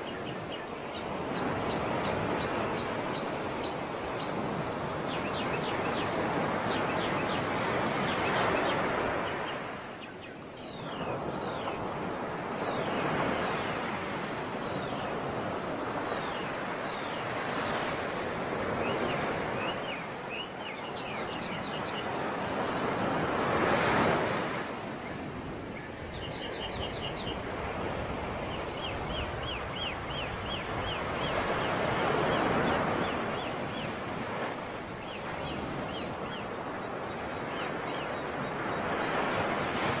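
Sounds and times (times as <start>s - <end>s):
sea waves washing on shore: 0.0s - 40.0s
small birds chirping: 18.8s - 22.9s, 25.0s - 39.9s.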